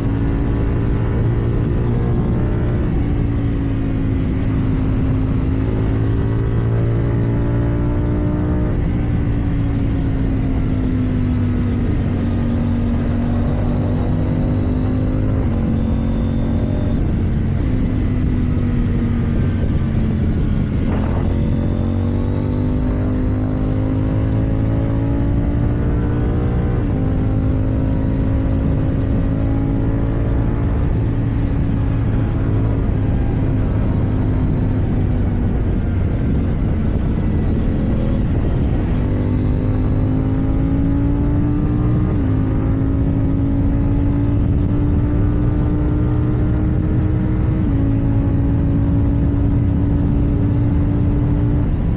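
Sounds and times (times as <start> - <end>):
gear changes: 0.0 - 51.9
motorcycle engine cruising: 0.0 - 51.9.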